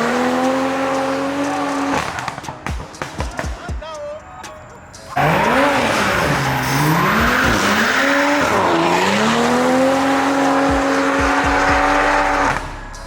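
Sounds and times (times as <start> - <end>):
car engine revving high: 0.0 - 2.4, 5.2 - 13.0
tyres squealing: 3.3 - 12.6.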